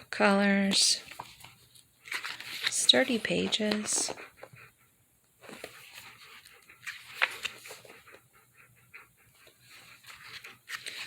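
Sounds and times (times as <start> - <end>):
dog panting: 2.3 - 11.0.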